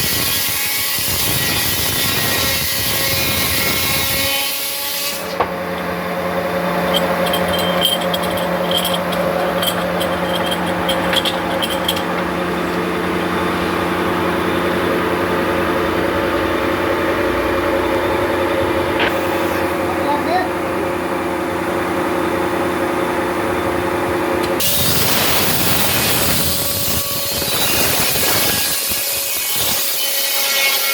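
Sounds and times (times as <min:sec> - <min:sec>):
sawmill machinery motor hum: 0:03.2 - 0:26.4
metallic rattling: 0:06.7 - 0:12.9.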